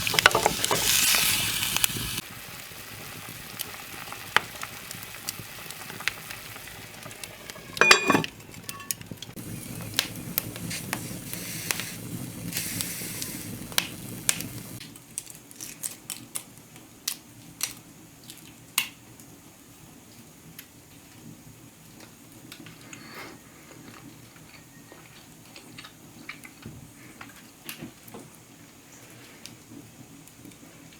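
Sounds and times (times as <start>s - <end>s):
metal utensils clicking and scraping: 0.0s - 1.0s, 7.4s - 9.0s
food sizzling in a pan: 0.0s - 14.8s
loud ringing metal clank: 7.8s - 9.0s.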